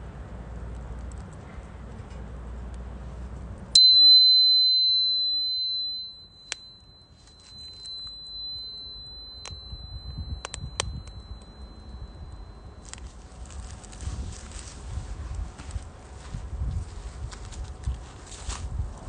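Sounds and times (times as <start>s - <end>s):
small bell chime ringing: 3.8s - 14.0s.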